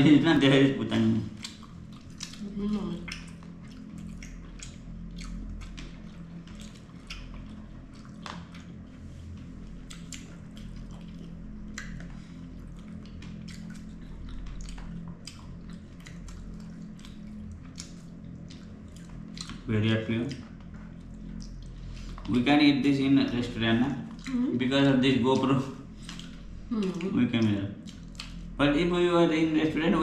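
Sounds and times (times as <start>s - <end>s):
steady low hum: 0.0s - 30.0s
chewing seafood: 0.4s - 28.9s.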